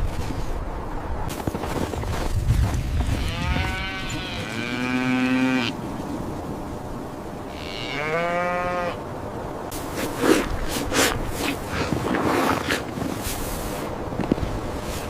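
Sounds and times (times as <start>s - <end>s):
cow mooing: 3.2s - 5.8s, 7.5s - 9.0s.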